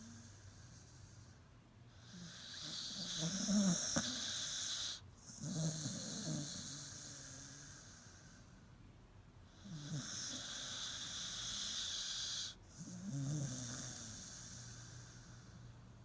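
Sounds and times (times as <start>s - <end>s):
dog snoring wheezily: 2.0s - 8.4s, 9.6s - 15.5s.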